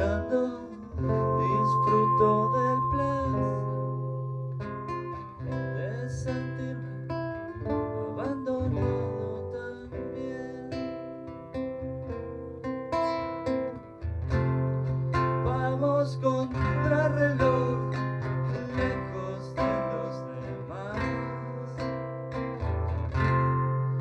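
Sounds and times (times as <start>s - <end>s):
acoustic guitar plucked and strummed: 0.0s - 24.0s
low bass note: 0.9s - 4.8s.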